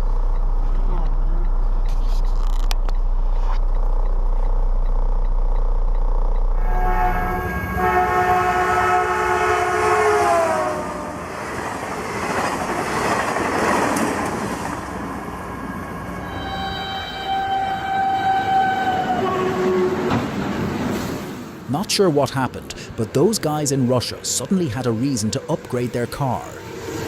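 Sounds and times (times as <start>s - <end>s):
steady low hum: 0.0s - 9.3s
rushing rumble of passing train: 5.3s - 27.0s
train horn: 6.6s - 11.4s, 15.8s - 20.2s.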